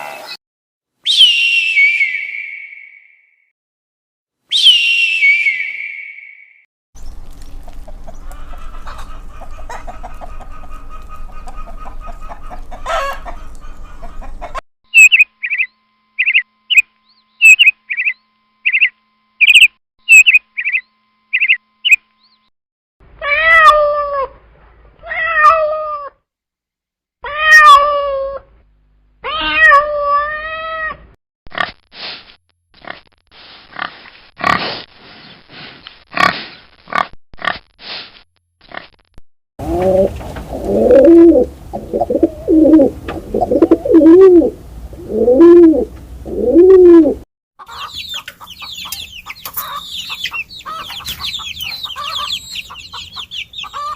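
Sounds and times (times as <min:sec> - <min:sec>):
long wavering animal calls: 0:39.6 - 0:47.2.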